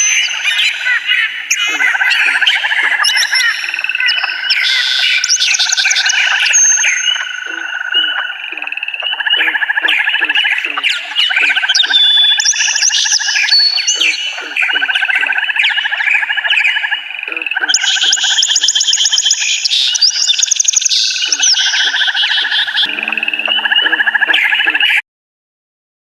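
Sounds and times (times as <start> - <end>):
forest birds trilling and chirping: 0.0 - 25.0
low buzzing tone: 22.8 - 24.5.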